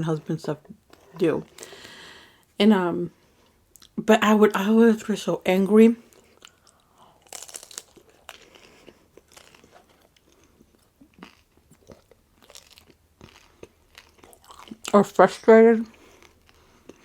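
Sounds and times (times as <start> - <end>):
person chewing crunchy food: 6.0 - 15.0, 15.9 - 17.0.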